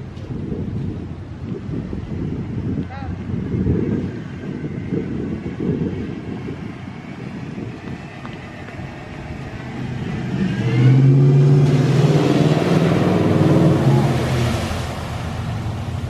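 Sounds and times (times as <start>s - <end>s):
water rushing from tyres: 4.2s - 16.0s
pickup truck engine revving: 9.0s - 16.0s.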